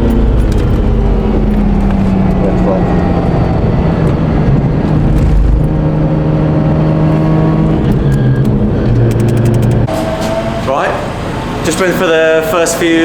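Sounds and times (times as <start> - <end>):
rotary car engine running: 0.0 - 10.2.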